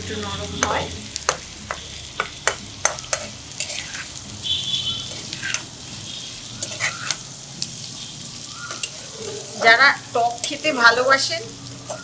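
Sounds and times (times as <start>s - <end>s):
food sizzling in a pan: 0.0s - 12.0s
metal spatula scraping a pan: 2.3s - 11.2s.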